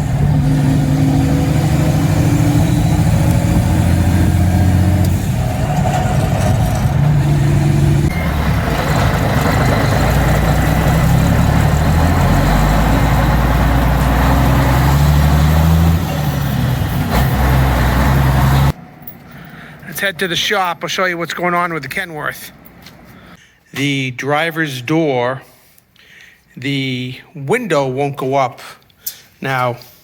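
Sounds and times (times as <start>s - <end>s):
diesel truck engine running: 0.0s - 18.8s.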